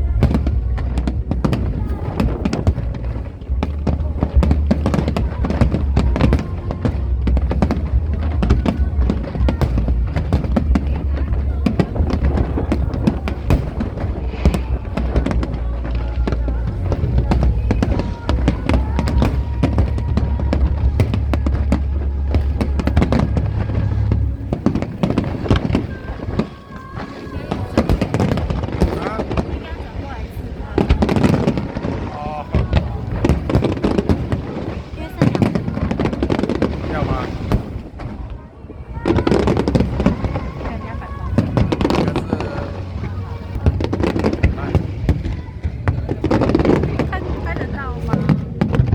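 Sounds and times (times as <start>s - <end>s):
low steady rumble: 0.0s - 26.2s
fireworks bangs and crackles: 0.0s - 48.9s.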